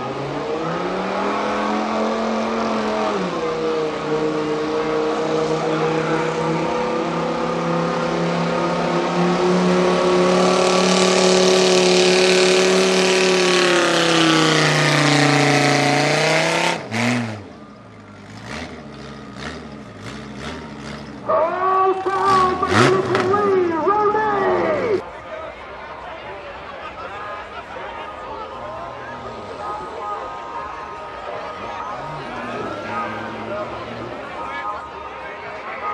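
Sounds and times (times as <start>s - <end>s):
truck engine revving under load: 0.0s - 21.4s, 22.0s - 23.6s.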